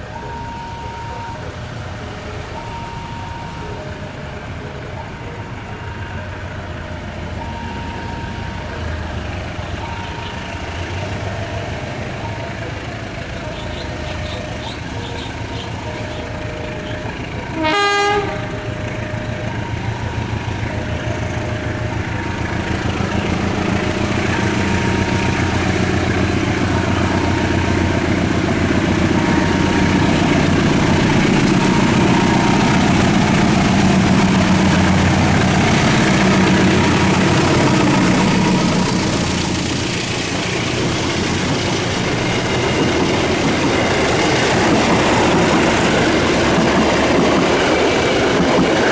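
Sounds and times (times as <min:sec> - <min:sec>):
train wheels clattering: 0:00.0 - 0:48.9
train horn: 0:13.6 - 0:19.8.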